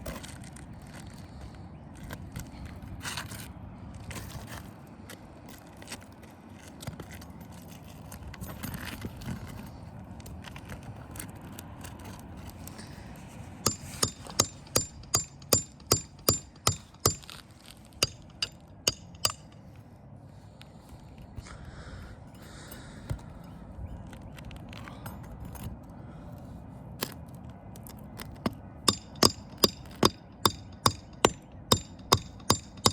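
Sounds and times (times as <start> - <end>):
hammer strikes on shingles: 13.6 - 17.4, 18.0 - 19.6, 28.4 - 32.9.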